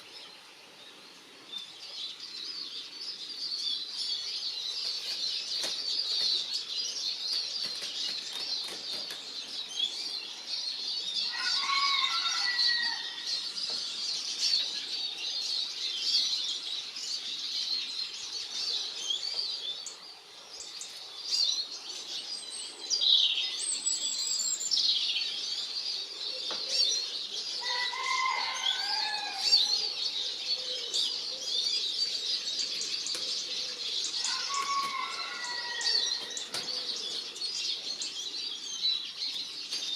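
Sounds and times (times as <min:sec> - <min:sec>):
birds twittering and chirping: 0:00.0 - 0:39.9.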